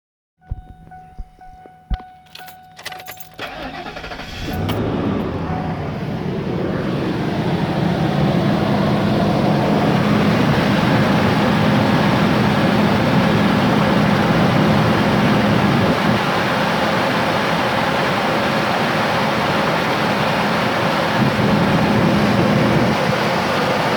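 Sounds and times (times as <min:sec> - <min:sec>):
keys jangling: 0:01.2 - 0:03.8
engine cranking and starting: 0:02.3 - 0:06.7.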